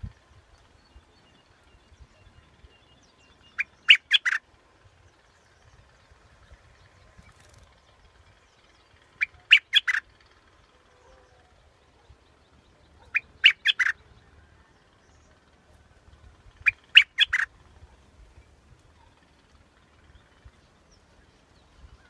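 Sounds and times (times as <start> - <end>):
bulbul song: 3.4 - 4.4, 9.1 - 10.1, 13.0 - 14.1, 16.6 - 17.5.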